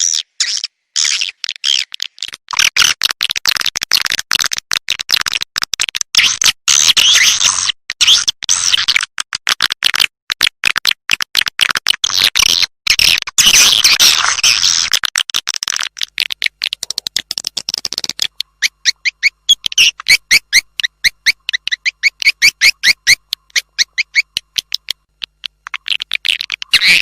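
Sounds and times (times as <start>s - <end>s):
bird chirping and twittering: 17.8s - 27.0s.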